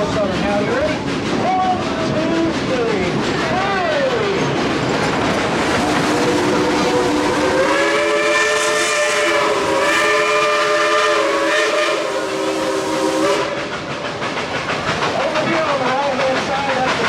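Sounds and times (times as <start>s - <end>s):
moving train hiss and rumble: 0.0s - 17.0s
steam locomotive whistle: 5.6s - 13.9s.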